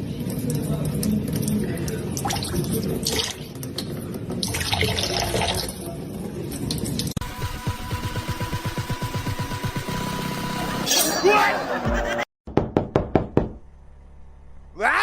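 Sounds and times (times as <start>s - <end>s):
water splashing and dripping: 0.0s - 5.9s.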